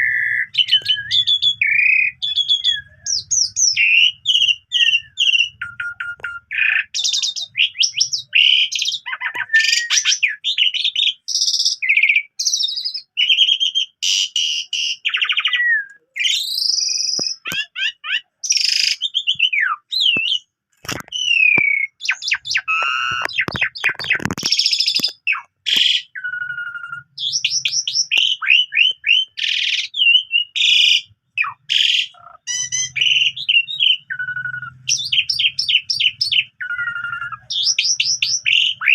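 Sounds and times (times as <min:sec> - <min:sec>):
starling singing: 0:00.0 - 0:38.9
sharp clicks: 0:20.1 - 0:26.0.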